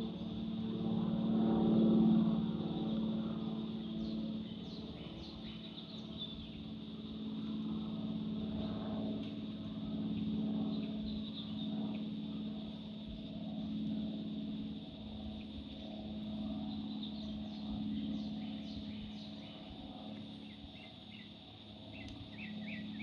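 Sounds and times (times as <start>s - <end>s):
low mechanical drone: 0.0s - 23.0s
birds chirping: 10.1s - 13.0s, 16.5s - 23.0s.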